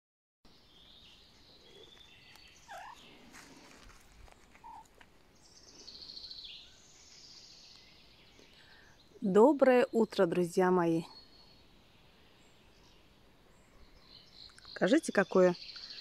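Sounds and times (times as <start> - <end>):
faint songbirds singing: 0.5 - 16.0
bird trill: 1.7 - 3.2.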